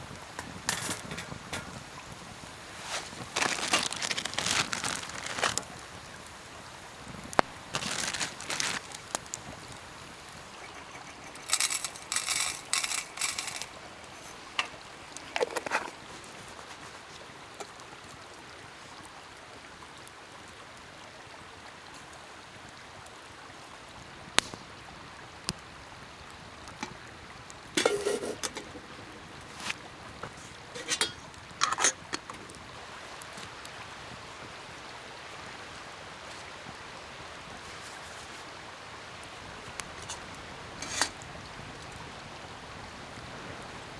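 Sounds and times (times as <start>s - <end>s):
campfire hissing and popping: 0.0s - 43.9s
rustling and handling noise: 2.6s - 6.4s, 7.0s - 18.2s, 27.8s - 32.5s, 39.4s - 41.2s.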